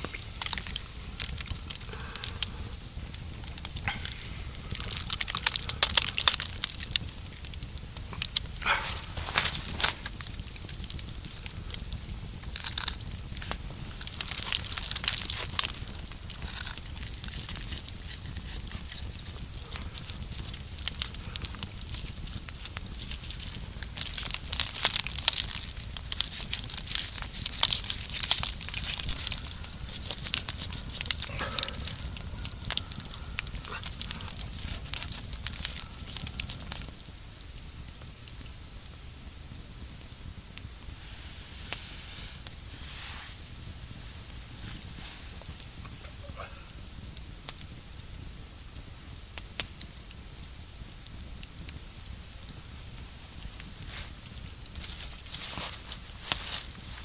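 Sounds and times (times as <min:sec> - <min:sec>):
dry leaves and twigs crackling: 0:00.0 - 0:37.2, 0:52.5 - 0:57.0.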